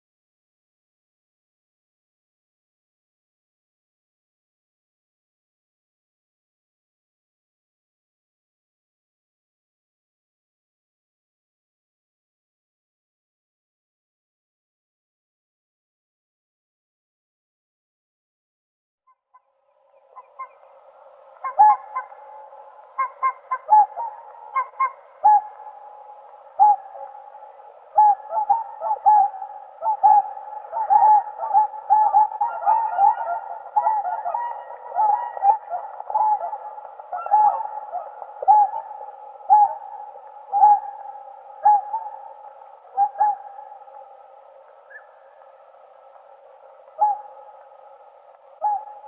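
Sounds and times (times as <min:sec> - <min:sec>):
background bird calls: 0:19.4 - 0:49.0.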